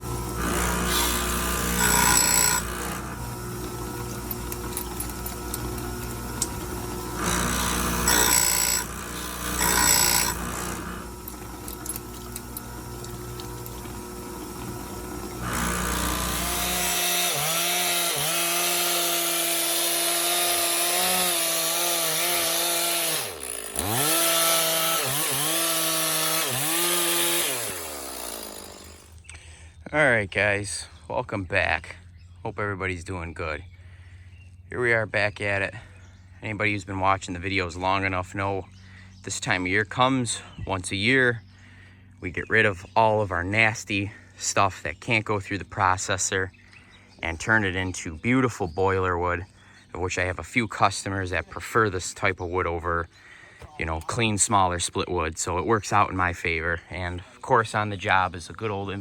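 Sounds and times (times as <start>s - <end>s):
chainsaw cutting wood: 0.0s - 29.4s.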